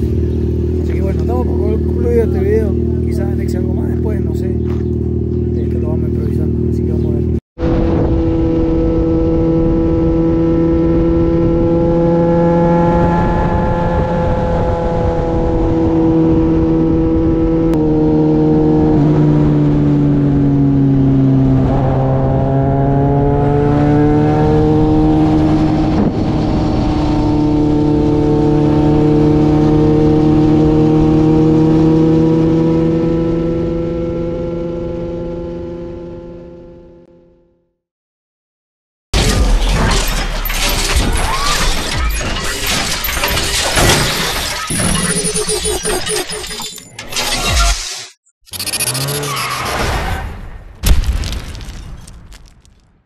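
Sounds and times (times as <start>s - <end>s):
motorcycle engine cruising: 0.0s - 37.5s
wind noise: 7.6s - 17.7s.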